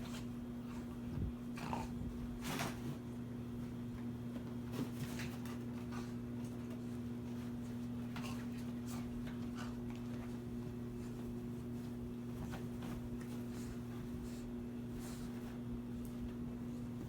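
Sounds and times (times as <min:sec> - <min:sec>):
dog scratching and rustling: 0:04.4 - 0:17.0.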